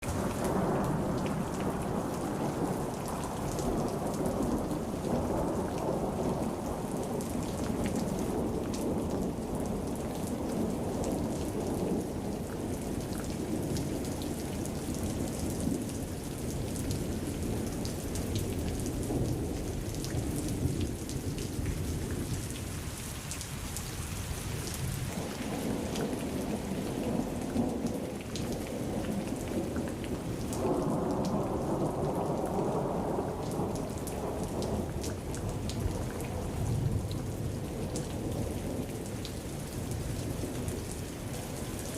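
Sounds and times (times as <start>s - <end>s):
heavy rain pouring: 0.0s - 41.9s.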